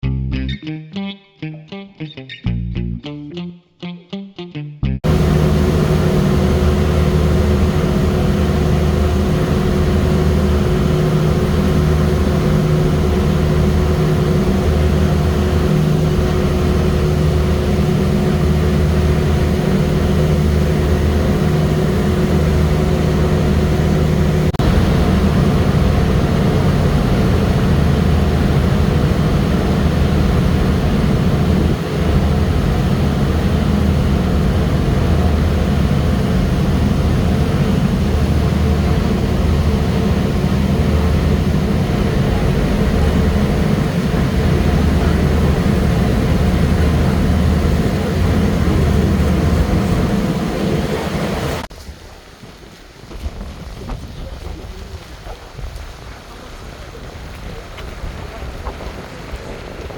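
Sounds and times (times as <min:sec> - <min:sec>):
heavy engine droning: 0:05.0 - 0:51.7
steady hum: 0:05.0 - 0:51.7.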